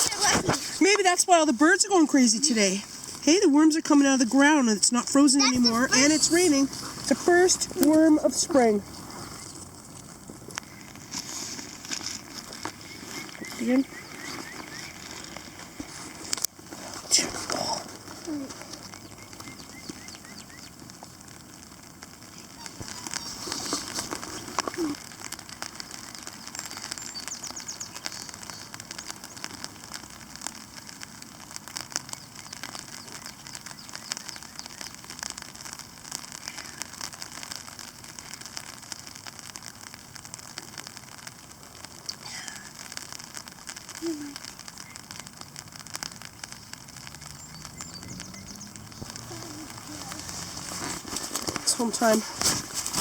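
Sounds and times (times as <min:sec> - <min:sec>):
campfire crackling: 0:00.0 - 0:53.0
rain pattering on a tarp: 0:00.0 - 0:53.0
faint bird call: 0:22.3 - 0:23.9.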